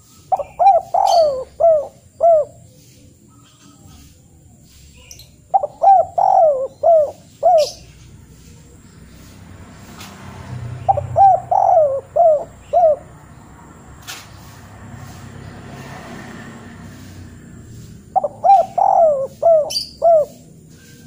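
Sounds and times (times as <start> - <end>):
bird calling: 0.0 - 9.0, 10.7 - 13.4, 17.0 - 21.0.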